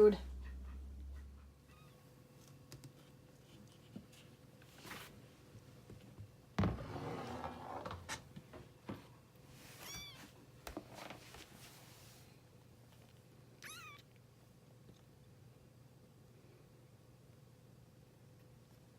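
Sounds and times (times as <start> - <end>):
high-pitched cat meow: 13.6 - 14.1.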